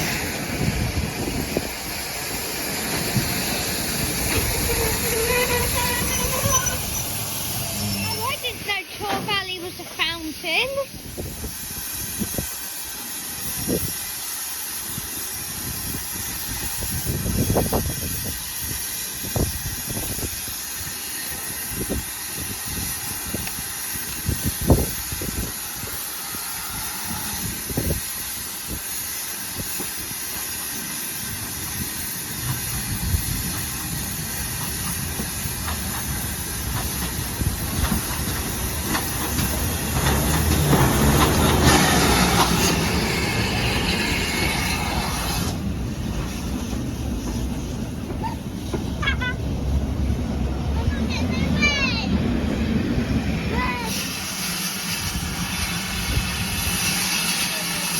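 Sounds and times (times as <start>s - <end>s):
steam locomotive hissing: 0.0s - 57.9s.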